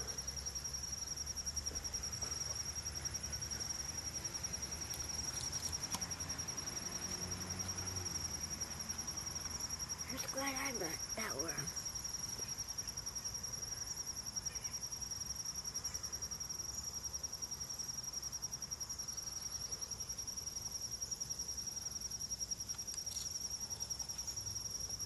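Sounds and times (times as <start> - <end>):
insects trilling: 0.0 - 25.0.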